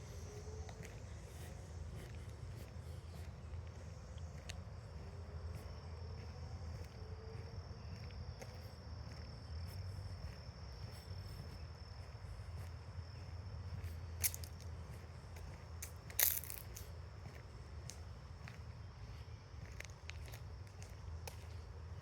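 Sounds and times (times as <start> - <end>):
insects trilling: 0.0 - 22.0
footstep ticks: 0.2 - 21.7
sharp crunch: 15.8 - 17.0.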